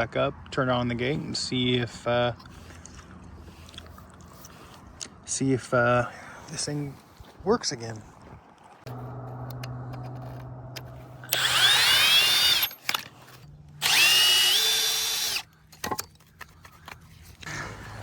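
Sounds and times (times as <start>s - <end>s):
low steady hum: 0.0s - 18.0s
cordless drill whine: 11.2s - 13.0s, 13.8s - 15.5s.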